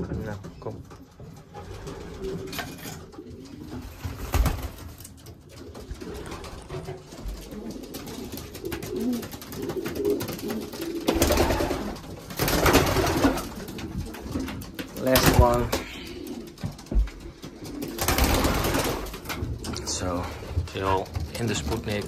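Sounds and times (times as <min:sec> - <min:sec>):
pigeons cooing: 0:01.0 - 0:22.0
wings fluttering: 0:01.6 - 0:20.0.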